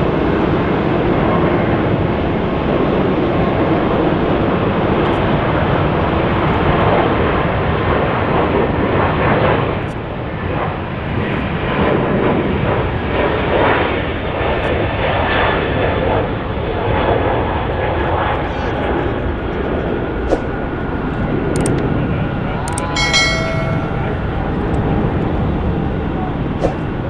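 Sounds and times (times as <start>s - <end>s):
jet airliner engines roaring: 11.6s - 23.2s.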